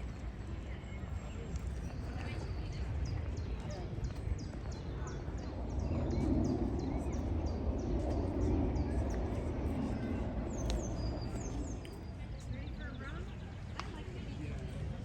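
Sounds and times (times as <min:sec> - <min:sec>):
small birds chirping: 0:00.0 - 0:14.7
low murmur: 0:00.0 - 0:15.0
outdoor background noise: 0:00.0 - 0:15.0.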